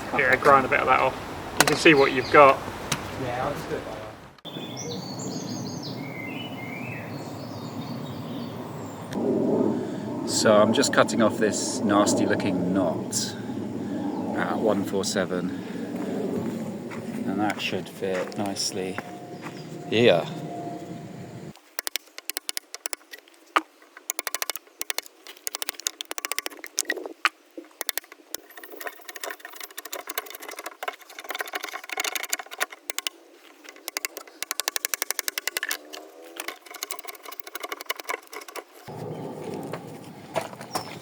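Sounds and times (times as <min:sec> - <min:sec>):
hand tool clicks and knocks on wood: 0:21.6 - 0:38.9.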